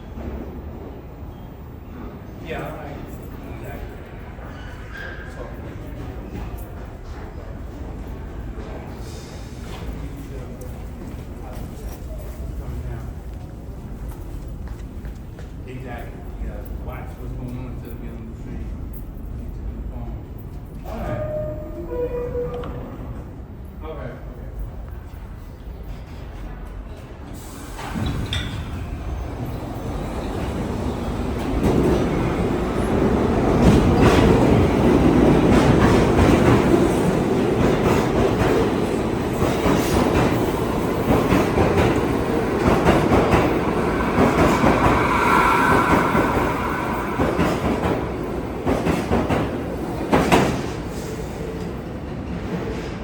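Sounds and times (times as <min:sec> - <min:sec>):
subway train running: 0:00.0 - 0:53.0
brief high whine: 0:44.0 - 0:48.5.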